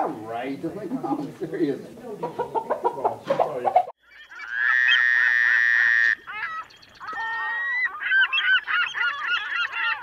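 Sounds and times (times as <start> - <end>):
bird calls: 2.2 - 10.0.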